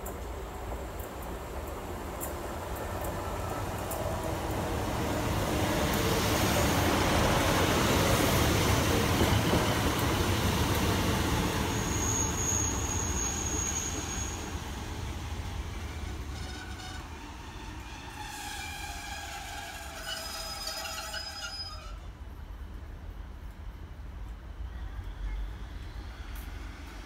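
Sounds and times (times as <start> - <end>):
diesel train passing: 0.0 - 27.0
thin high-pitched squeal: 11.7 - 14.5, 15.9 - 22.0.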